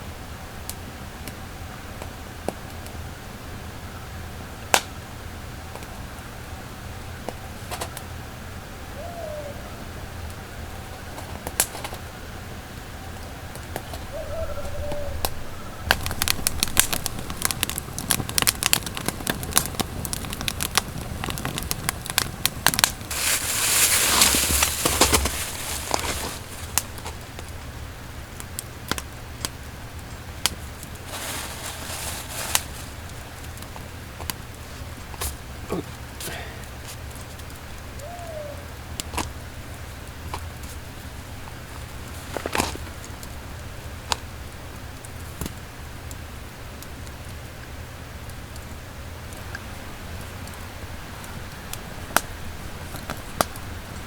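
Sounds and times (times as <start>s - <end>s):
firewood crackling: 4.4s - 9.5s, 10.2s - 54.0s
short low bird calls: 8.8s - 10.6s, 13.3s - 17.4s, 37.9s - 38.9s
rustling noise: 13.7s - 27.6s, 30.6s - 33.9s, 40.5s - 43.2s.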